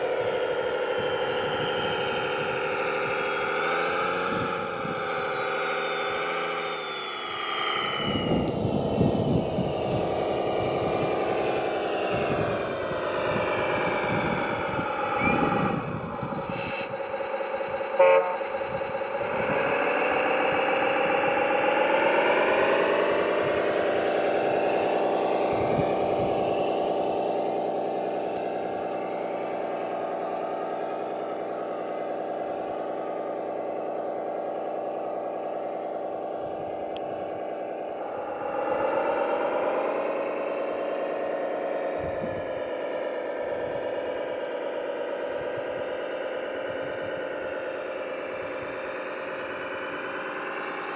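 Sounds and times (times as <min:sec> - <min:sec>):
model vehicle mechanical whine: 0:00.0 - 0:50.9
short horn toot: 0:18.0 - 0:18.4.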